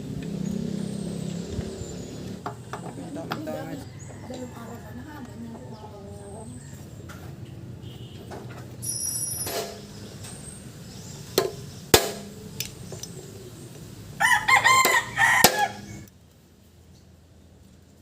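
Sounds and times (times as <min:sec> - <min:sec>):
rooster crowing: 0:03.5 - 0:06.9, 0:14.2 - 0:16.1
sharp metallic knocks: 0:09.3 - 0:10.0, 0:11.4 - 0:12.5, 0:14.8 - 0:15.8.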